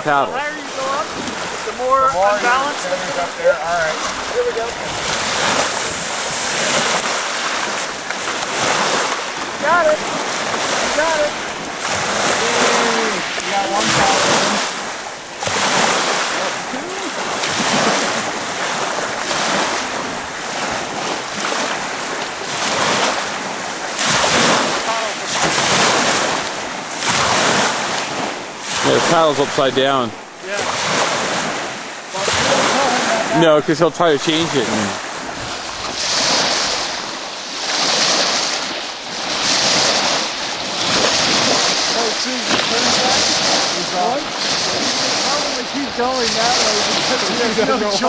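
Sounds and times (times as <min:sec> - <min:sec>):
ocean surf breaking: 0:00.0 - 0:48.0
wind buffeting microphone: 0:00.0 - 0:48.0.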